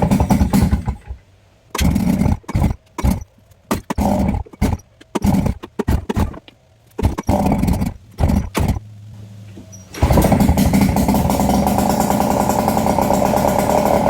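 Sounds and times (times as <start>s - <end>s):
outboard motor sputtering: 0.0s - 1.2s, 10.0s - 14.0s.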